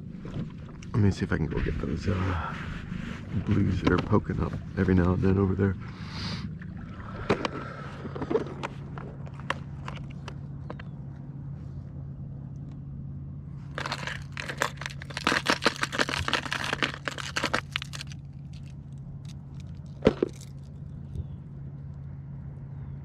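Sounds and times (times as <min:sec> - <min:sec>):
crackling and rustling: 0:07.4 - 0:11.7, 0:13.6 - 0:22.0.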